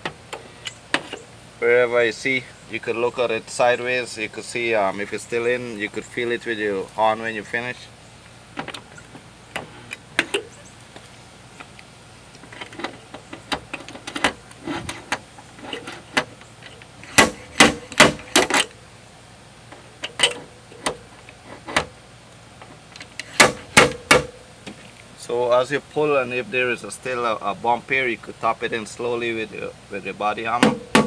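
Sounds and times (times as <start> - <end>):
metal knocks on steel: 30.6 - 31.0.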